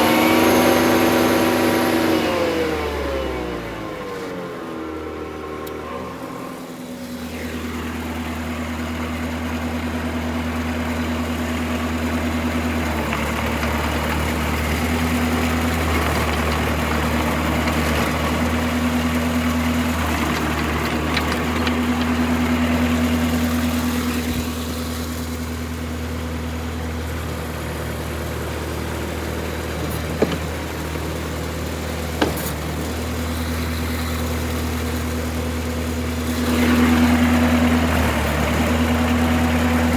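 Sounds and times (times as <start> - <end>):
loud rough grinding noise: 0.0 - 3.9, 10.8 - 26.0, 27.1 - 39.9
stump grinder engine running: 0.0 - 39.9.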